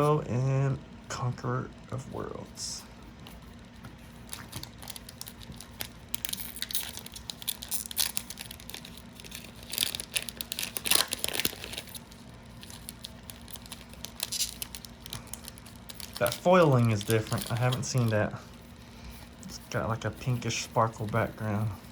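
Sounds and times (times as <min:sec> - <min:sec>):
cards being handled: 0:02.8 - 0:21.9
foil wrapper crinkling and tearing: 0:03.4 - 0:21.7.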